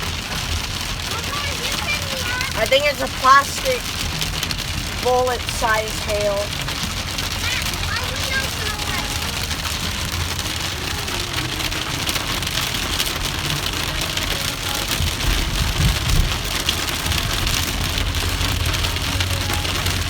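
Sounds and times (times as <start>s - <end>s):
heavy rain and hail: 0.0s - 20.0s
low rumble: 14.9s - 20.0s.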